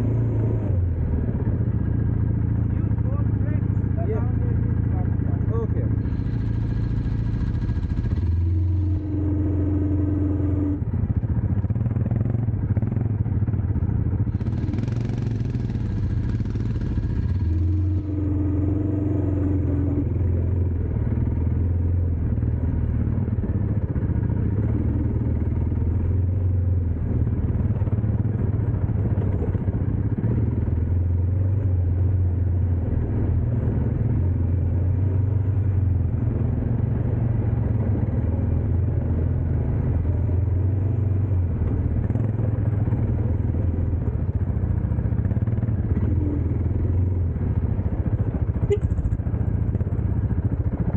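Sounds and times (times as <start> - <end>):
dirt bike engine running: 0.0 - 50.9.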